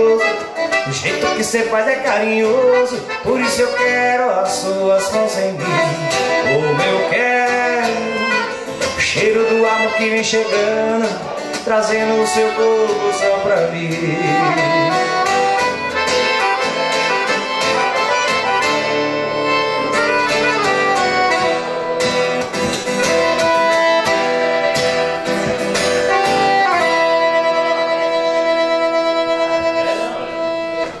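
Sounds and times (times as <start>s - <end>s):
band playing instrumental ending: 14.6s - 27.9s.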